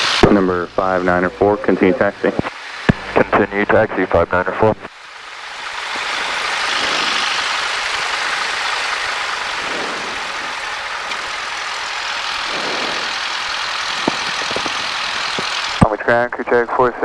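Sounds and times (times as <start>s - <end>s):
airplane engine drone: 0.0s - 17.0s.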